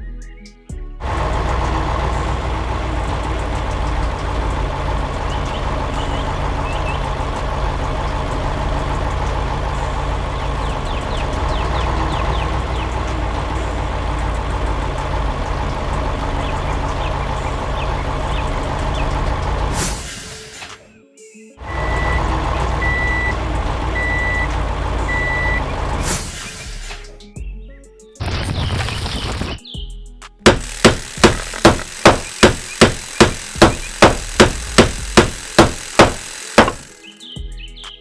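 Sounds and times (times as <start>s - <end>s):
truck engine deep rumble: 0.0s - 20.9s, 21.6s - 27.4s.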